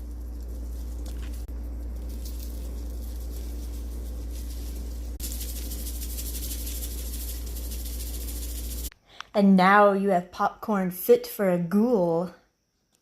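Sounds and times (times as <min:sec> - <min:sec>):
sprinkles rattling over popcorn: 0:00.0 - 0:08.9
low hum: 0:00.0 - 0:09.0.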